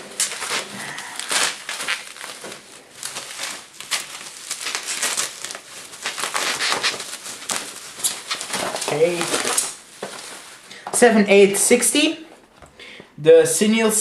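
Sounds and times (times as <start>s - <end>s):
foam packing wrap crinkling: 0.0s - 12.6s.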